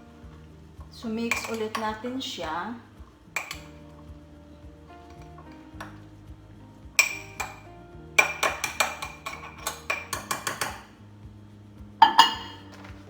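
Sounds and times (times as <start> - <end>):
background music: 0.0 - 13.0
spoon clinking against dish: 1.2 - 2.1, 3.4 - 4.0, 7.0 - 11.0, 12.0 - 12.9.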